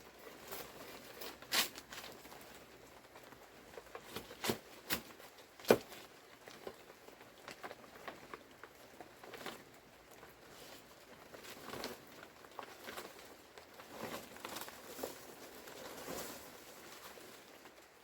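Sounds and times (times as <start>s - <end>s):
rustling: 0.0s - 18.0s.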